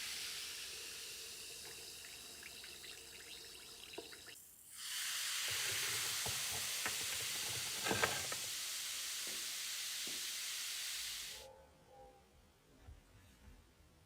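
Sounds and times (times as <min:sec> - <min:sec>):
hiss of pressurised spray: 0:00.0 - 0:01.7, 0:04.7 - 0:11.4.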